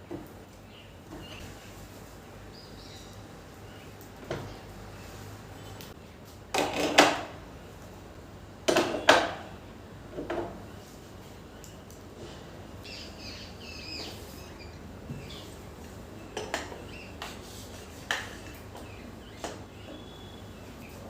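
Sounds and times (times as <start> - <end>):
faint chirps: 18.8 - 21.0.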